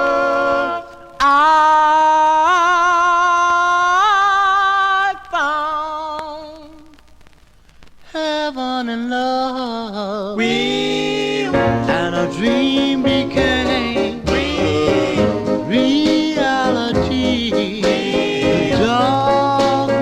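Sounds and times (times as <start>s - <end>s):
singing voices with vibrato: 0.0s - 20.0s
instrumental backing: 10.5s - 20.0s.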